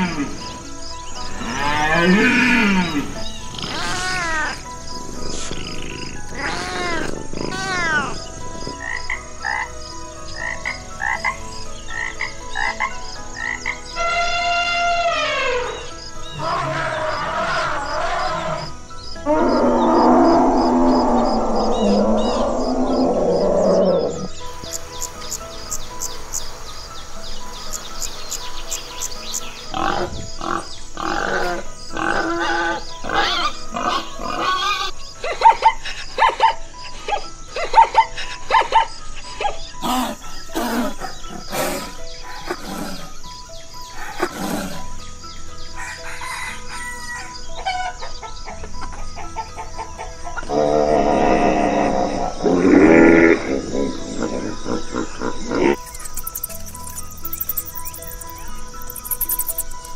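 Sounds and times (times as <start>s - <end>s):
frog croaking: 0.0s - 36.9s, 39.8s - 45.4s, 49.4s - 59.9s
elephant call: 1.2s - 9.7s, 10.4s - 35.8s, 39.8s - 45.0s, 50.4s - 59.9s
pig grunting: 29.7s - 34.9s, 39.8s - 43.2s, 44.0s - 45.0s, 50.5s - 58.4s.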